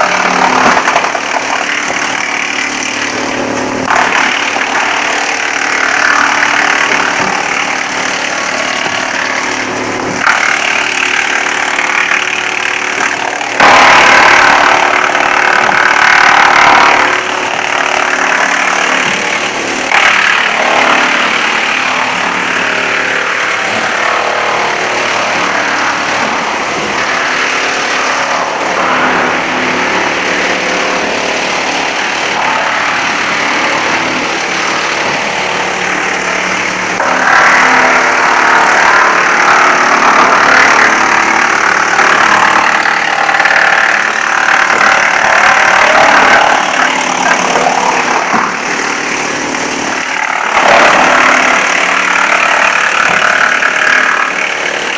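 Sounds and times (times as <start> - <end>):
wood chipper running: 0.0 - 54.9.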